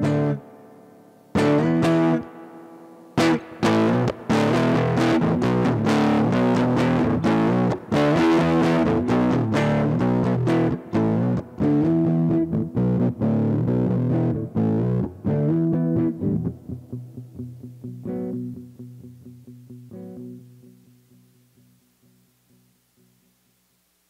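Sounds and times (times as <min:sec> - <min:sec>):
distorted electric guitar chords: 0:00.0 - 0:23.4.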